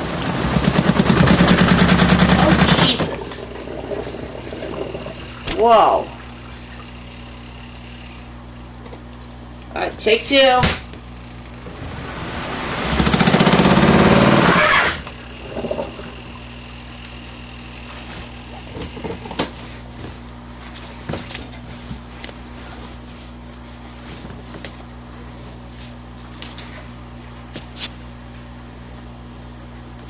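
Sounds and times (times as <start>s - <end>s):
spin dryer rattling off balance: 0.0s - 7.2s, 11.5s - 17.3s
low machine hum: 0.0s - 30.0s.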